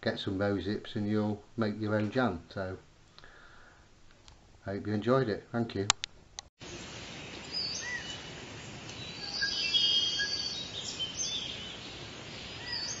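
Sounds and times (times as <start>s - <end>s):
steady hiss: 6.6s - 13.0s
small birds chirping: 6.7s - 13.0s.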